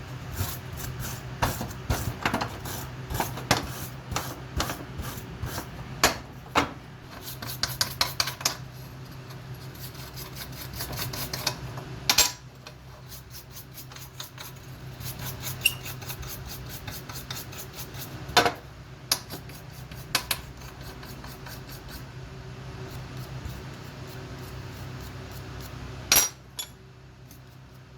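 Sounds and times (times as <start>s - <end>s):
low steady hum: 0.0s - 27.9s
metal clinking and scraping: 26.1s - 27.5s.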